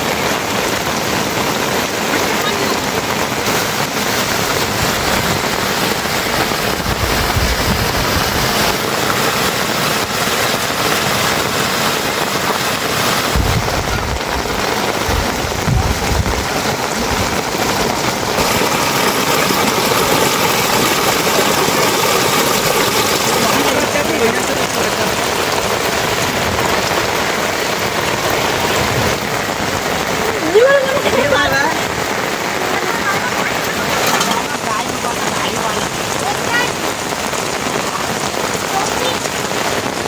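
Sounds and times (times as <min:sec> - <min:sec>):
rain hissing: 0:00.0 - 0:40.0
brief low rumbles: 0:13.4 - 0:16.5.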